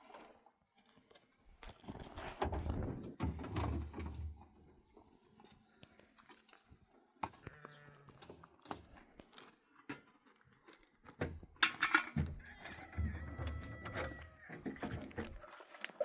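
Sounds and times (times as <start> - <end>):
sheep and goats bleating: 7.4 - 8.2.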